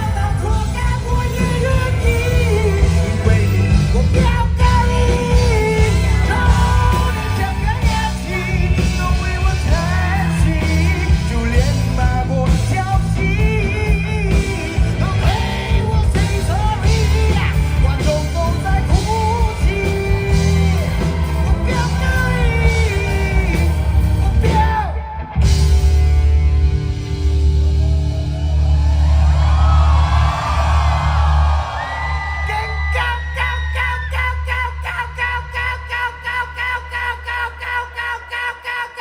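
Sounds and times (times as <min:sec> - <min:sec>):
live rock band playing: 0:00.0 - 0:33.7
man singing high notes: 0:32.4 - 0:39.0.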